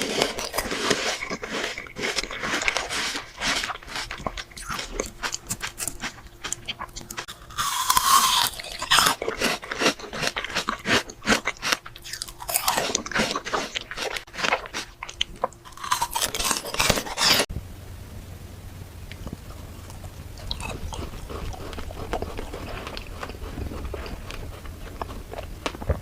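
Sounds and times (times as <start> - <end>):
crunching of frozen fruit chewed: 0.0 - 17.5, 19.1 - 26.0
low hum: 13.8 - 26.0.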